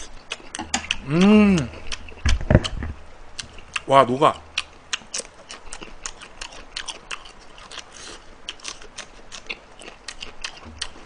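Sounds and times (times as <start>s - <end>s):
mouth clicks and smacks: 0.0s - 2.8s
person chewing food: 0.0s - 3.9s, 4.5s - 11.0s.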